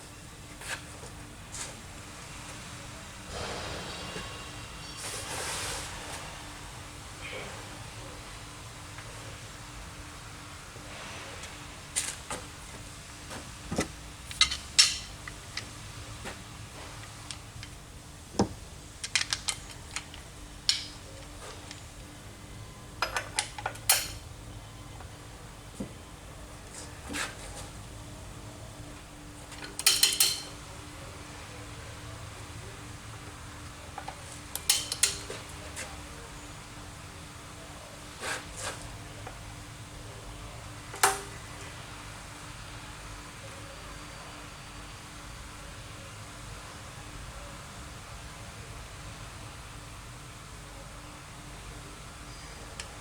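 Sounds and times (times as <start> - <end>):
faint steady hum: 0.0 - 53.0
metal scrape: 3.3 - 6.3
metal tools clinking: 23.0 - 24.2, 29.6 - 30.6, 34.6 - 35.4.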